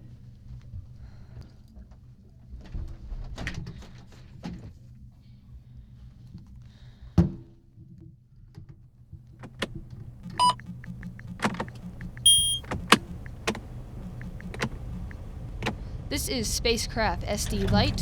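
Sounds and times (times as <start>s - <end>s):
short electronic beeps: 10.2s - 15.4s
low hum: 10.2s - 16.0s
switch clicks: 10.3s - 15.8s.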